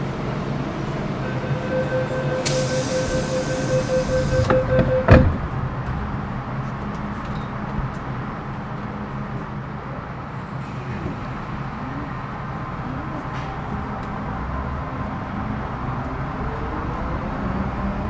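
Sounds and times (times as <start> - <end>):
train low hum: 0.0 - 18.0
door-closing warning tone: 1.2 - 5.4
hiss: 2.4 - 4.3
sliding doors shutting thump: 4.3 - 5.5.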